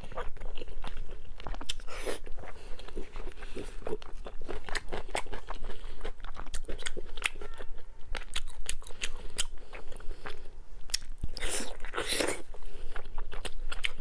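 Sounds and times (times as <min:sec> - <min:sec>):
close-miked chewing: 0:00.0 - 0:14.0.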